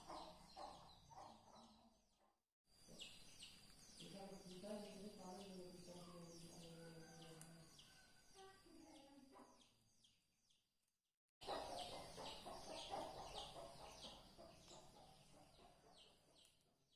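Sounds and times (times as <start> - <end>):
faint background noise: 0.0 - 10.0
small birds chirping: 0.0 - 10.7, 11.4 - 16.9.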